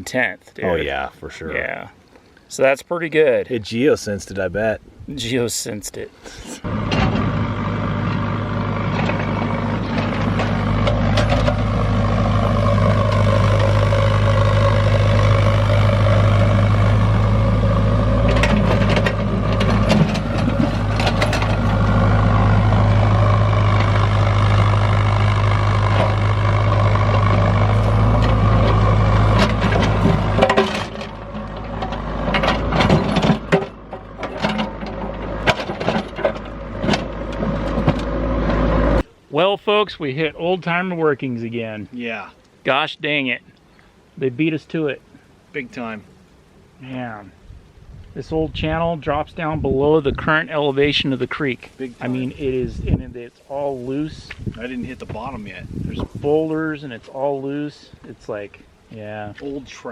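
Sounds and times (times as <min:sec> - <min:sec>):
excavator diesel engine running: 0:06.6 - 0:39.1
bucket knocking and scraping rock: 0:08.9 - 0:13.9, 0:14.6 - 0:22.8, 0:27.1 - 0:38.6.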